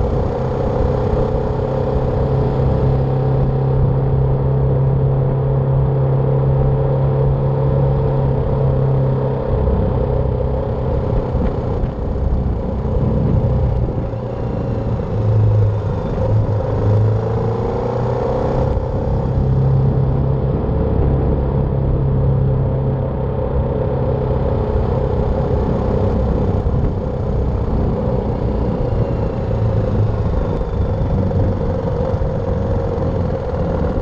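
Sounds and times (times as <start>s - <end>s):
motorcycle engine running: 0.0s - 34.0s
wind rush: 9.6s - 17.5s, 18.6s - 34.0s.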